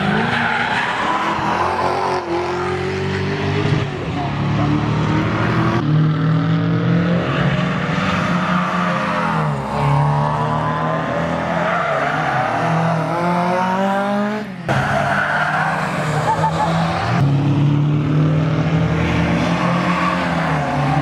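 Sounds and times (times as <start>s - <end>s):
car engine at high revs: 0.0s - 15.0s.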